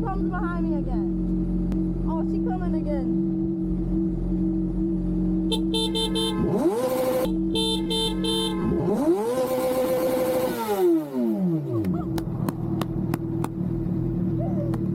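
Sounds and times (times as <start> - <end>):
motorcycle engine revving: 0.0 - 14.9.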